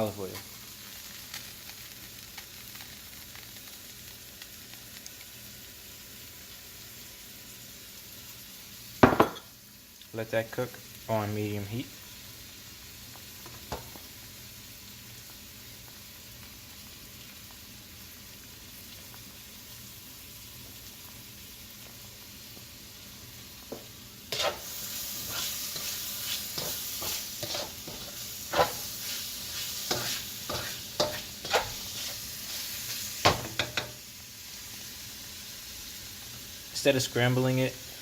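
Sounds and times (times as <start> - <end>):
eggs sizzling in a pan: 0.0 - 38.0
spatula scraping a pan: 23.7 - 33.9.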